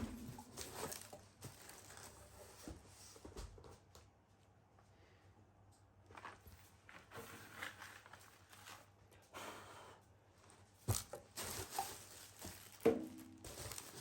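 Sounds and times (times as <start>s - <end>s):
paper rustling and tearing: 10.9s - 14.0s.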